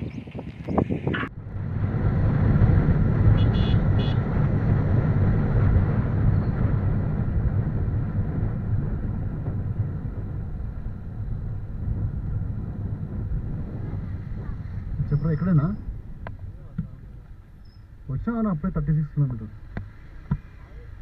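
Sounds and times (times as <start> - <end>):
motorcycle engine and road noise: 0.0 - 21.0
wind rushing over microphone: 0.0 - 21.0
vehicle horn tooting: 3.3 - 4.3.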